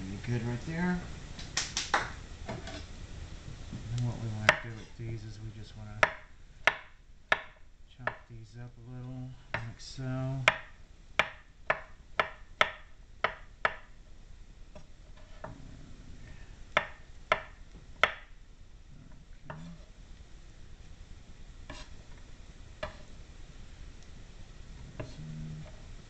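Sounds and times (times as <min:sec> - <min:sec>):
knife chopping on cutting board: 0:04.4 - 0:04.8, 0:06.0 - 0:08.3, 0:10.5 - 0:13.9.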